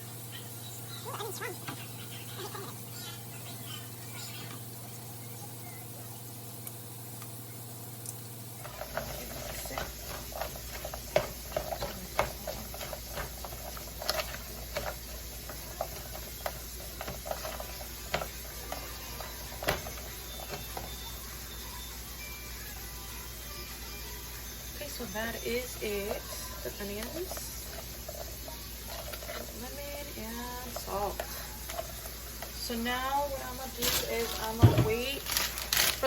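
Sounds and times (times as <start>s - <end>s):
kitchen utensils clicking: 8.6s - 21.3s, 24.9s - 36.0s.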